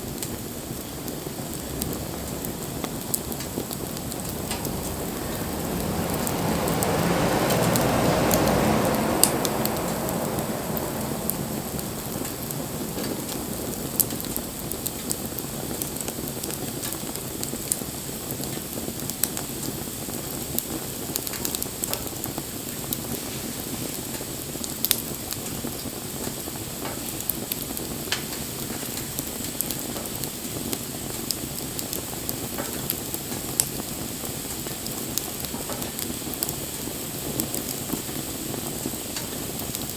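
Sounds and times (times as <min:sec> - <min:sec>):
wood fire crackling: 0:00.0 - 0:39.9
rushing swell: 0:01.6 - 0:14.7.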